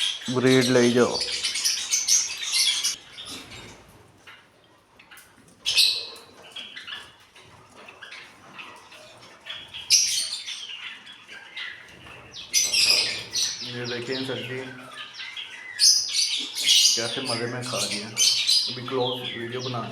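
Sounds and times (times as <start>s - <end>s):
cage birds chirping and squawking: 0.0s - 19.9s.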